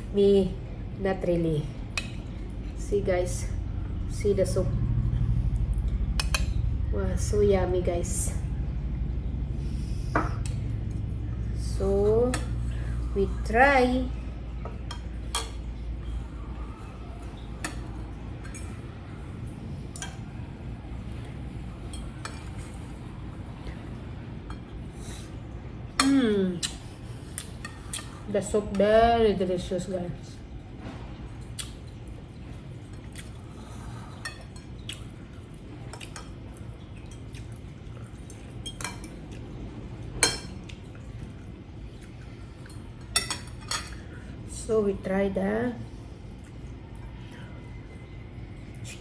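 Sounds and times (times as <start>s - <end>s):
steady low hum: 0.0s - 49.0s
spoon clinking against a bowl: 38.3s - 39.2s, 42.6s - 44.0s.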